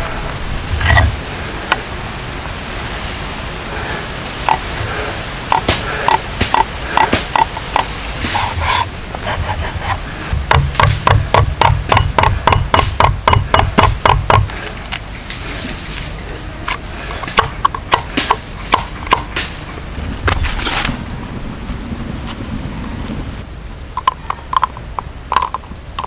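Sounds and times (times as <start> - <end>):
tool knocking on wood: 5.5 - 9.3, 10.3 - 14.6.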